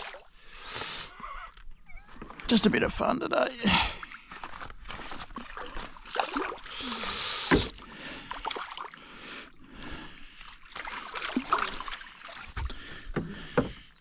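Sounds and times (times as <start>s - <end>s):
water splashing: 0.0s - 0.4s, 3.9s - 13.5s
knocks on a small boat: 13.1s - 13.8s.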